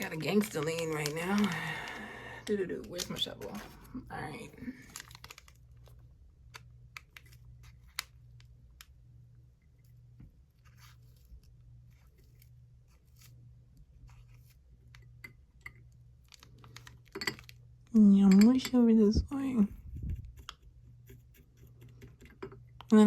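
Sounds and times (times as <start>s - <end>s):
plastic pieces clicking: 0.0s - 2.0s, 4.8s - 8.9s
low steady hum: 0.0s - 23.0s.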